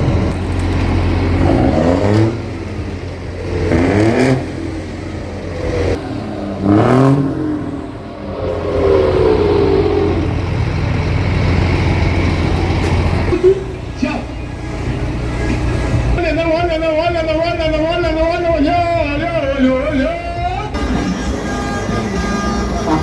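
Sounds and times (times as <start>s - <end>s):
steady low drone: 0.0s - 16.2s
truck engines revving: 0.0s - 23.0s.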